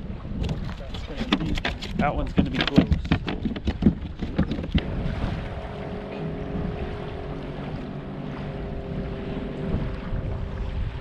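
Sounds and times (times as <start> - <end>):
wind buffeting microphone: 0.0 - 11.0
steady tonal hum: 4.8 - 11.0.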